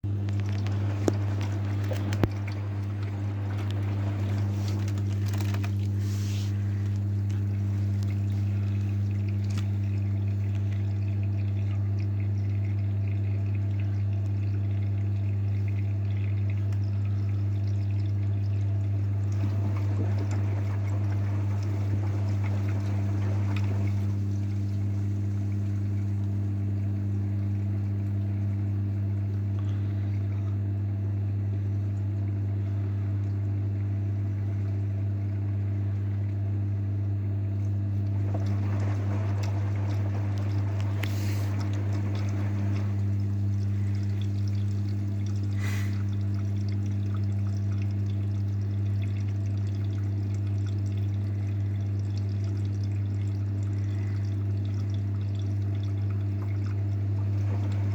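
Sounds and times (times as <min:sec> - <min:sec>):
steady low hum: 0:00.0 - 0:57.9
water flowing in washing machine: 0:00.0 - 0:57.9.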